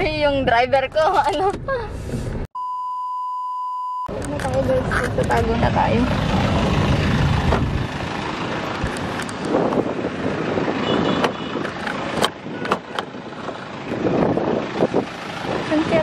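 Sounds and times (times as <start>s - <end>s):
brief high beep: 2.6s - 4.1s
vehicle traffic: 4.1s - 16.0s.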